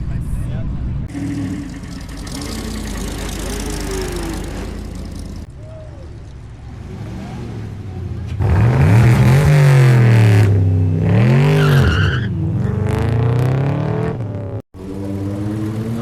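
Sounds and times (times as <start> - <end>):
vehicle engine revving: 1.1 - 5.5, 6.5 - 16.0.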